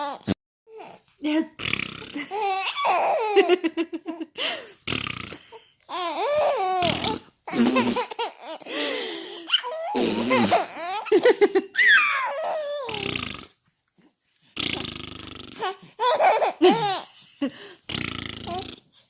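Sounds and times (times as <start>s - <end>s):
young child laughing: 16.0s - 17.6s.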